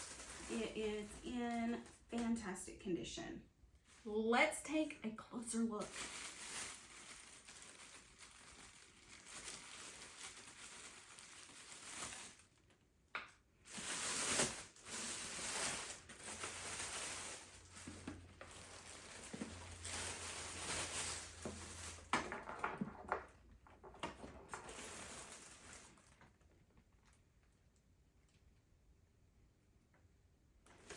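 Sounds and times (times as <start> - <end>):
plastic wrapping crinkling: 0.0 - 2.2, 4.7 - 12.9, 13.5 - 27.2, 30.7 - 30.9.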